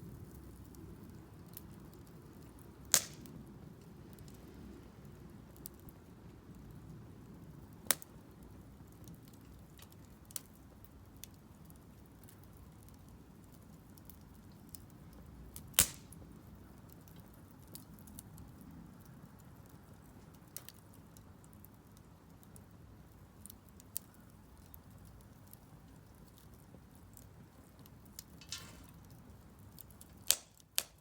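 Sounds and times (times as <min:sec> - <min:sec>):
firewood crackling: 0:00.0 - 0:31.0
sharp pops of fire: 0:00.2 - 0:04.6, 0:07.7 - 0:08.2, 0:13.5 - 0:18.2, 0:27.1 - 0:31.0.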